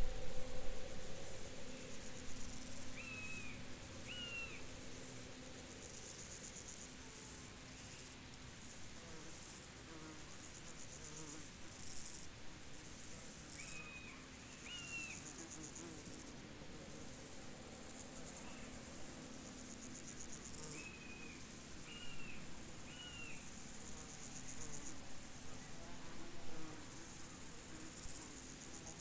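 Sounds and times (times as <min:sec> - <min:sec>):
insects chirping in pulsed trills: 0:00.0 - 0:06.9
low steady buzz: 0:00.0 - 0:29.0.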